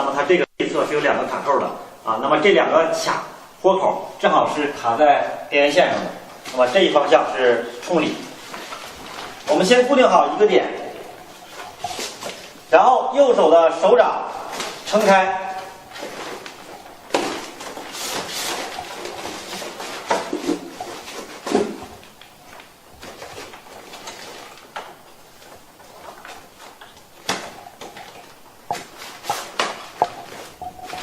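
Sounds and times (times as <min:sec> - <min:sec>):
cover rustling and scraping: 0:07.8 - 0:12.7, 0:14.3 - 0:31.0.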